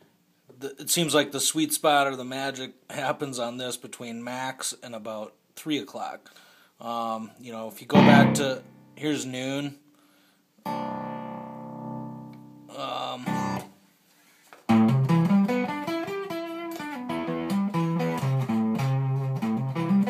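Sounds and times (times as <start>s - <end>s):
fuzz electric guitar playing: 7.9s - 8.9s, 14.7s - 20.0s.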